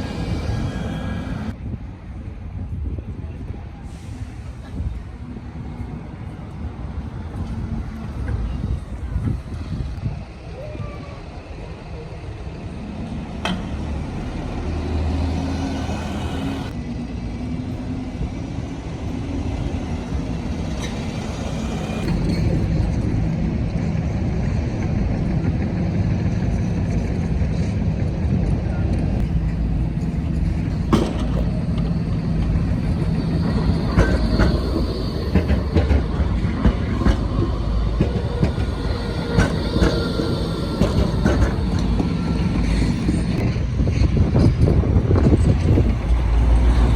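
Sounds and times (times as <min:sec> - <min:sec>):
high wheel squeal: 0:00.0 - 0:01.6, 0:31.9 - 0:43.4
tram motor hum: 0:00.0 - 0:03.2, 0:04.1 - 0:46.9.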